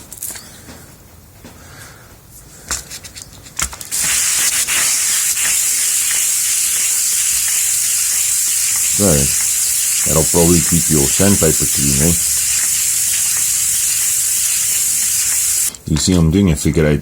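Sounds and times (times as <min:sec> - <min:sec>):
metal rubbing on wet sandpaper: 0:03.9 - 0:15.8.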